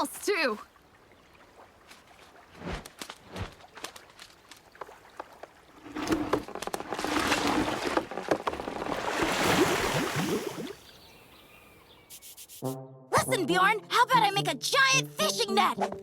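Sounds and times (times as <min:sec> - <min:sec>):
water sloshing and bubbling: 0:00.0 - 0:11.3.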